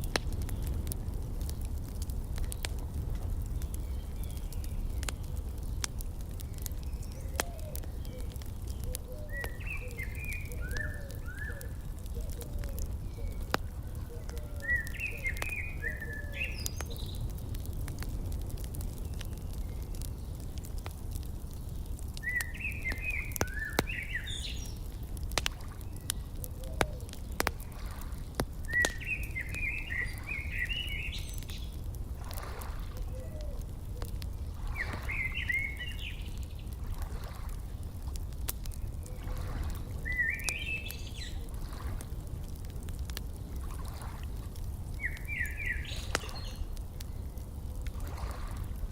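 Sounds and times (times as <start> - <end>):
outdoor fire crackling and popping: 0.0 - 48.9
songbird warbling: 6.9 - 17.2, 22.2 - 24.8, 28.7 - 31.6, 34.7 - 36.3, 40.0 - 41.5, 45.0 - 46.7.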